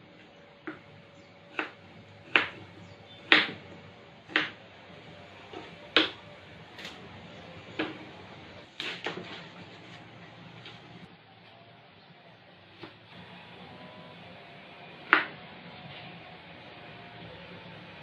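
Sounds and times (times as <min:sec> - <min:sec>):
knife chopping on cutting board: 0:00.6 - 0:03.7, 0:04.3 - 0:04.6, 0:05.4 - 0:07.0, 0:07.7 - 0:08.1, 0:15.0 - 0:15.3.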